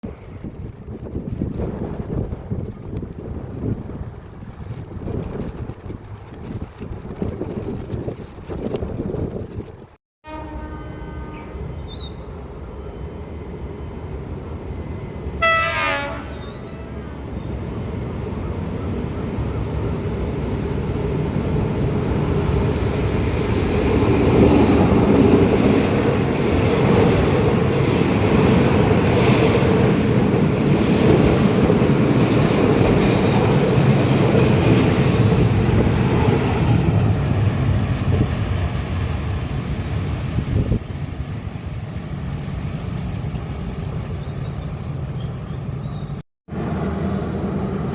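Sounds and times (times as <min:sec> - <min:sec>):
train horn: 0:10.2 - 0:12.2, 0:15.4 - 0:17.3
diesel train passing: 0:10.3 - 0:47.9.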